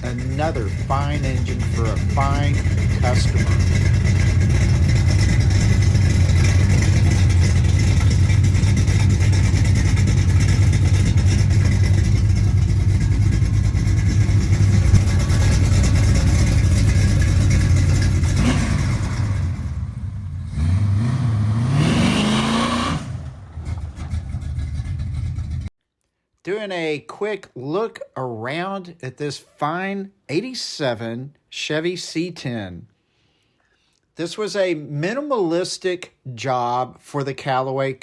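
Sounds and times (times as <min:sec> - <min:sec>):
car engine running: 0:00.0 - 0:25.7
engine revving: 0:00.0 - 0:25.7.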